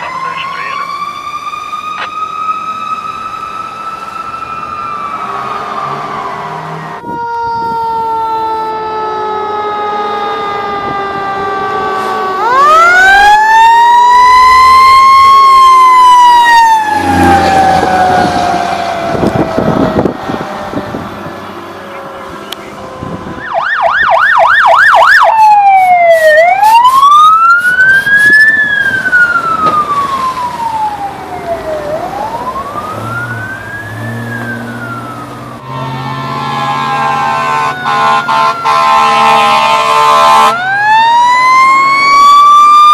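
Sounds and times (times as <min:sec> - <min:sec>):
electronic siren yelping and wailing: 0:00.0 - 0:42.9
air horn tones: 0:35.6 - 0:40.6.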